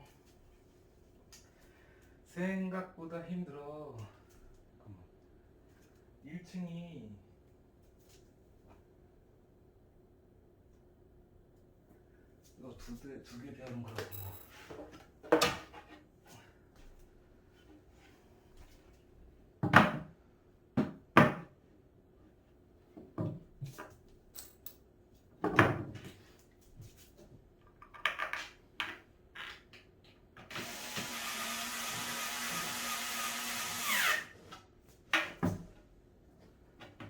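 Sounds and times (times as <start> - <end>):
cordless drill running: 30.5 - 34.4.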